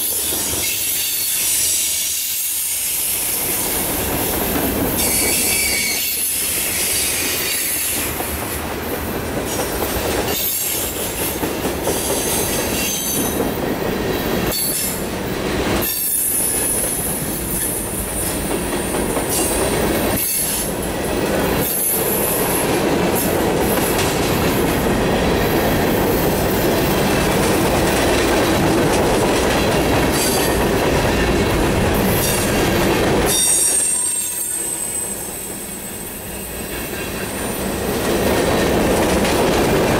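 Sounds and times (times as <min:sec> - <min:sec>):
train wheels rumbling and clacking: 0:00.0 - 0:39.9
high-pitched wheel squeal: 0:05.0 - 0:07.8, 0:33.3 - 0:36.0.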